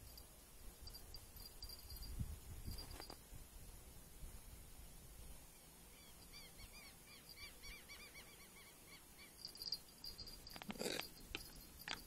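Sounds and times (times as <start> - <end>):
small bird chirping: 5.5 - 11.8.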